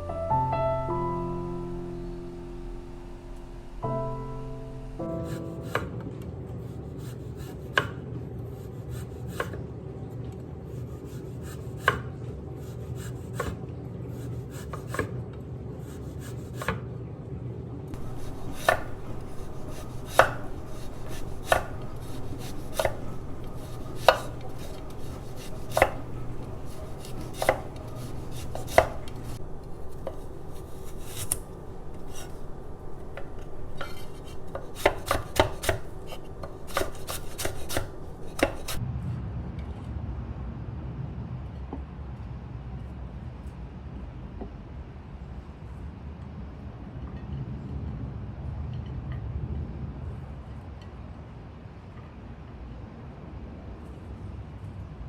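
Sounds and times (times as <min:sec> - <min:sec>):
steady low hum: 0:00.0 - 0:07.0, 0:17.9 - 0:39.2
knife chopping on cutting board: 0:18.0 - 0:38.8.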